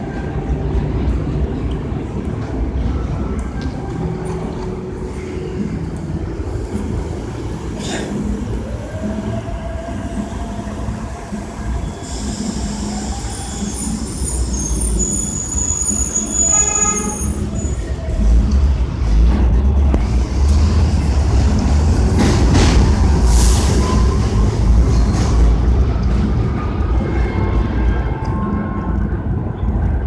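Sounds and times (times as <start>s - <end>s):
train rumbling over tracks: 0.0s - 30.0s
high-pitched wheel squeal: 11.7s - 18.0s, 23.2s - 25.5s.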